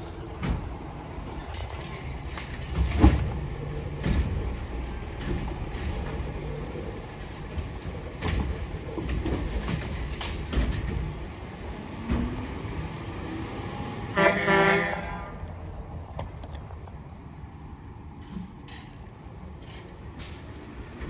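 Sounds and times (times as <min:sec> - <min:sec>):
knocks and clatter: 0:00.1 - 0:06.5, 0:07.2 - 0:11.4
horn honk: 0:14.1 - 0:15.4.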